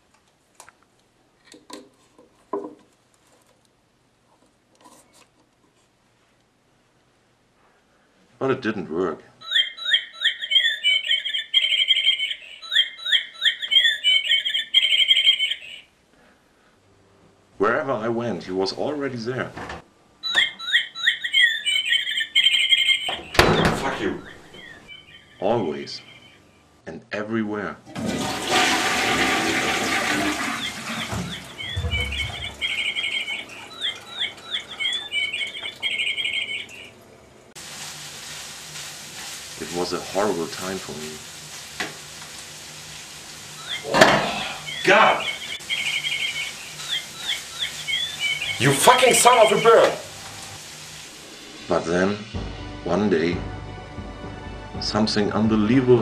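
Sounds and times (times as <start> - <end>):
bird chirping: 9.4 - 15.9, 20.2 - 26.7, 30.5 - 37.1, 43.6 - 50.2
toilet flushing: 27.9 - 36.0
low thud: 31.2 - 32.6.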